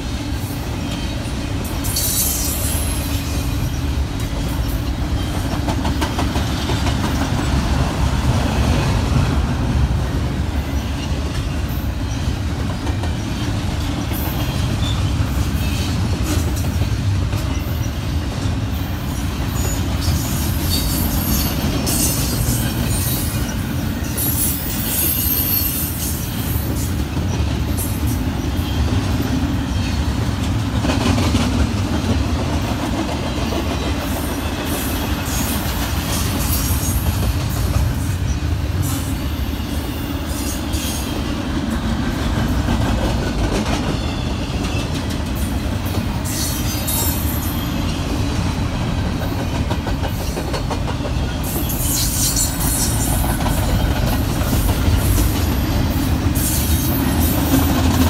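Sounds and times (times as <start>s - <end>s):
steel wheels rumbling on rails: 0.0s - 58.0s
high-pitched wheel squeals: 19.6s - 26.6s.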